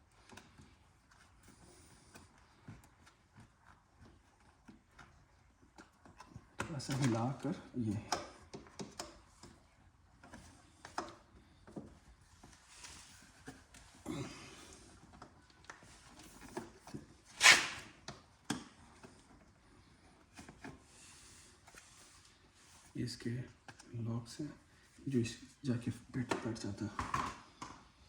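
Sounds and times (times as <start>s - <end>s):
brief scrape: 17.3s - 17.9s
short rubbing noises: 17.3s - 18.0s.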